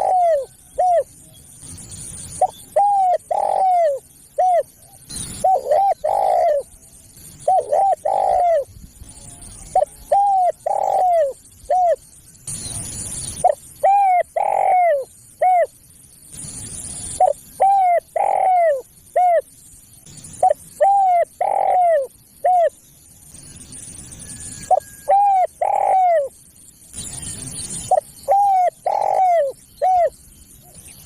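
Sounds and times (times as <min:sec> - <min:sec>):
dove cooing: 0:00.0 - 0:01.2, 0:02.4 - 0:06.8, 0:07.4 - 0:12.0, 0:13.4 - 0:15.7, 0:17.1 - 0:19.5, 0:20.4 - 0:22.8, 0:24.7 - 0:26.4, 0:27.9 - 0:30.9.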